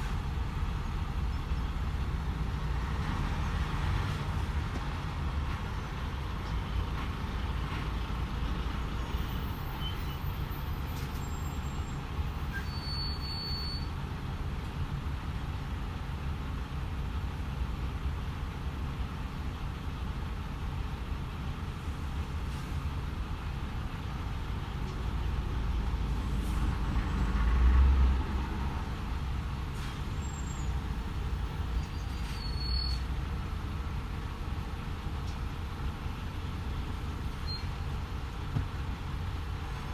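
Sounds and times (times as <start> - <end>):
road noise: 0.0 - 39.9
truck diesel engine drone: 0.0 - 39.9.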